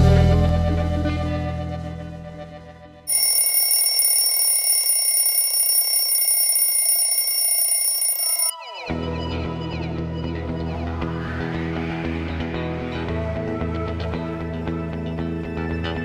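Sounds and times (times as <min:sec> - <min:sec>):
electric bell ringing: 0:03.1 - 0:08.5.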